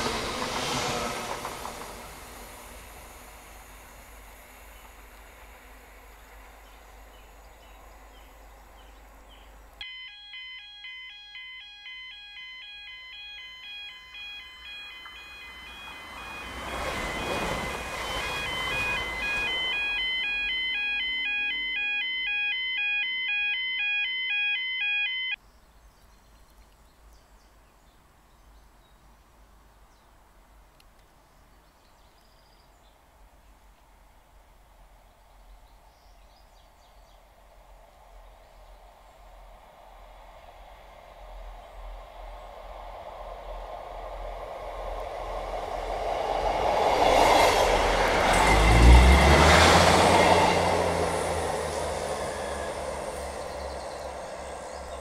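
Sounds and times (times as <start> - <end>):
train rushing past: 0.0 - 8.8, 13.6 - 21.8, 38.8 - 55.0
electronic warble of alternating tones: 9.8 - 25.4.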